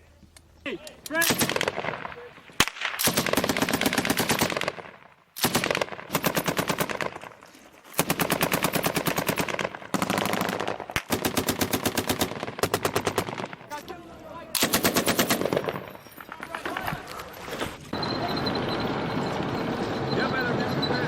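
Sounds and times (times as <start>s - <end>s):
automatic weapon fire: 1.2s - 7.4s, 8.0s - 13.8s, 14.5s - 16.8s.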